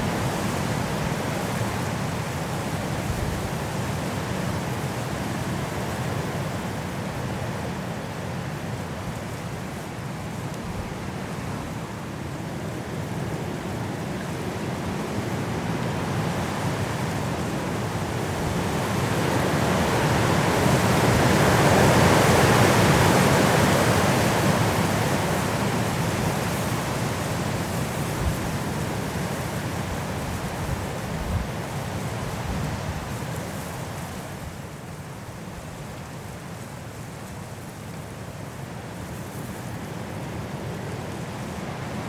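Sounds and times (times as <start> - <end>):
strong wind blowing through trees: 0.0 - 42.0.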